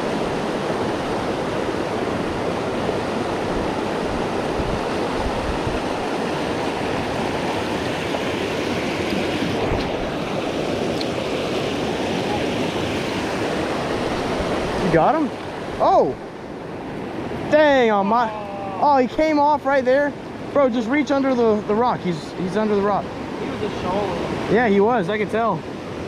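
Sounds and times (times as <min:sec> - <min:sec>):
wind buffeting microphone: 0:00.0 - 0:18.0
river water over rocks: 0:00.0 - 0:26.0.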